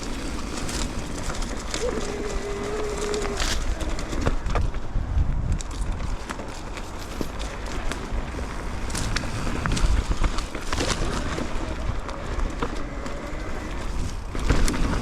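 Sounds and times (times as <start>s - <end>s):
bike knocks and rattles: 0.0s - 15.0s
tyres rolling over rock: 0.0s - 15.0s
wind on microphone: 0.0s - 15.0s.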